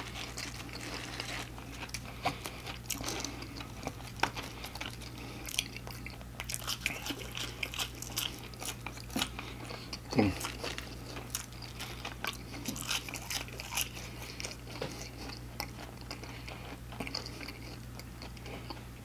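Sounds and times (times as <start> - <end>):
chewing crispy fried food: 0.0 - 19.0.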